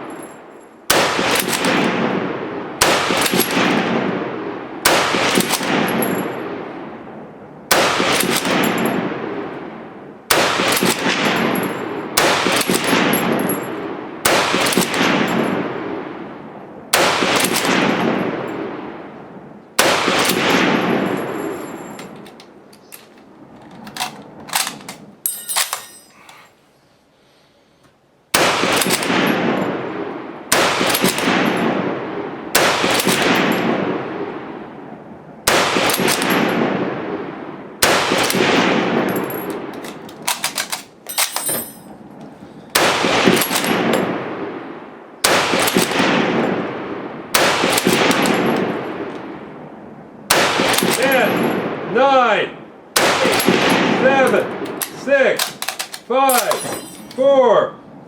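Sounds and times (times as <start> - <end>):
rifle shots with rolling echo: 0.0 - 25.8, 28.3 - 57.1
rifle bolt clicking: 22.0 - 25.8, 39.4 - 41.5, 54.3 - 57.2.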